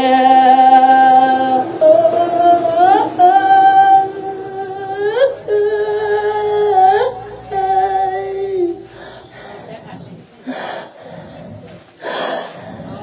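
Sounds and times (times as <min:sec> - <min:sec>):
person singing long held notes: 0:00.0 - 0:09.4.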